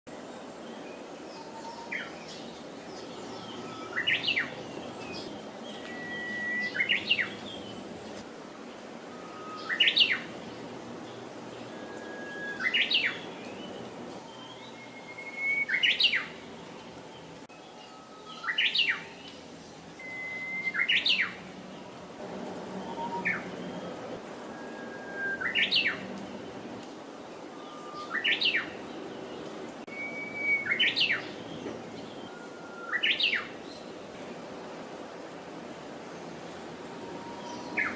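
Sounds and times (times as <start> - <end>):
bird singing whistled song: 3.2 - 7.6, 9.1 - 10.3, 11.7 - 16.4, 17.7 - 19.2, 20.0 - 21.4, 22.7 - 26.1, 27.5 - 28.8, 29.9 - 33.8, 37.0 - 37.9.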